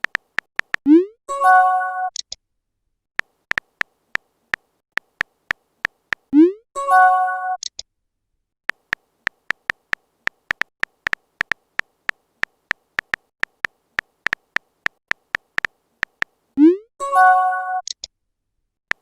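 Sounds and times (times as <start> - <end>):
phone keyboard ticks: 0.0 - 0.9, 3.2 - 6.3, 8.7 - 16.4.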